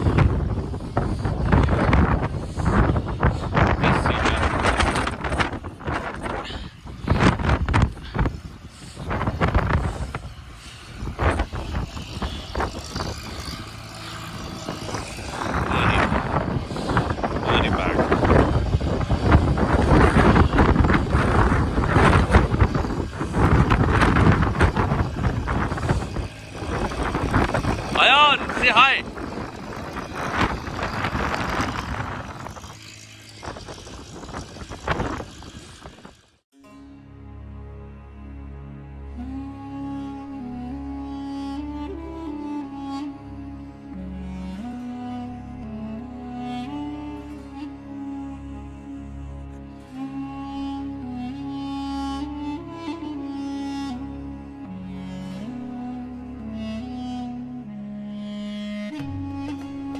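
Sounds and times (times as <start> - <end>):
strong wind buffeting microphone: 0.0 - 36.4.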